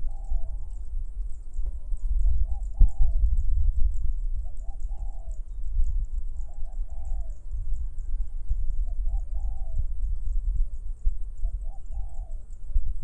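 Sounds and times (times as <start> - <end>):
dove cooing: 0.0 - 0.9, 1.6 - 3.4, 4.4 - 5.6, 6.3 - 10.1, 11.4 - 12.6
wind rumble on microphone: 0.0 - 13.0.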